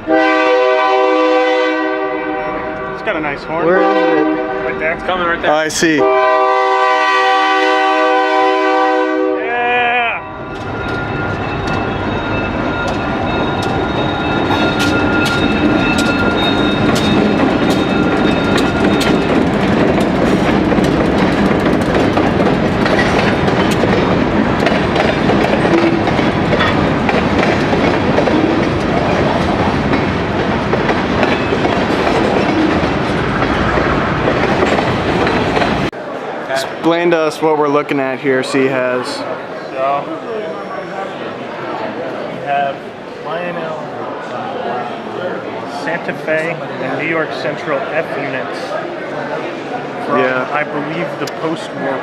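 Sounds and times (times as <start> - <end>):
model train electronic horn: 0.0 - 3.0, 3.6 - 4.8, 6.0 - 9.5
model train rumbling on track: 10.5 - 37.2.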